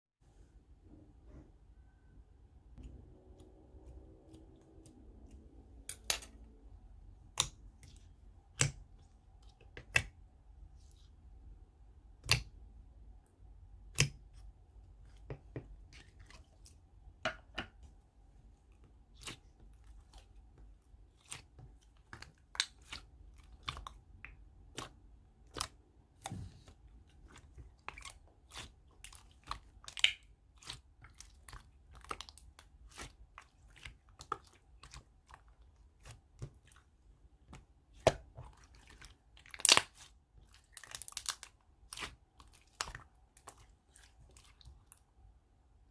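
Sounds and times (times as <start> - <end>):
slime popping and crackling: 39.4 - 43.5.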